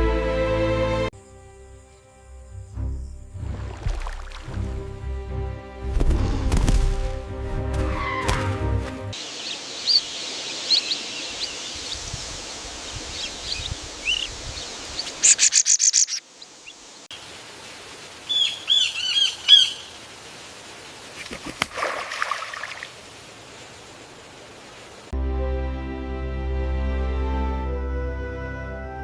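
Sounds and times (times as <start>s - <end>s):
faint outdoor hiss: 0.0s - 7.8s, 8.7s - 29.0s
wild birds chirping: 7.8s - 25.1s
whistled bird calls: 9.4s - 12.0s, 13.1s - 16.8s, 18.3s - 19.9s.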